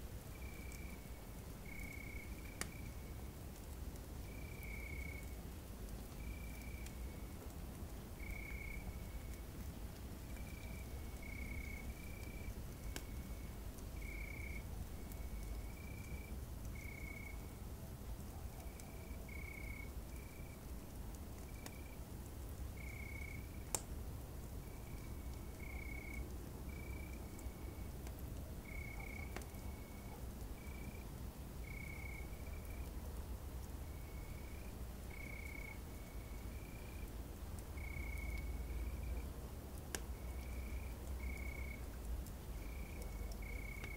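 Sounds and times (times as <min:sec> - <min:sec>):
campfire crackles: 0:00.0 - 0:43.9
night animal chirping: 0:28.6 - 0:31.0.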